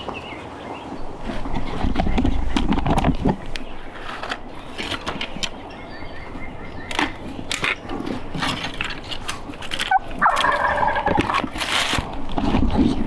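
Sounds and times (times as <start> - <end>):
clicks and rustles: 1.1 - 13.0
turkey gobbling: 9.9 - 11.6.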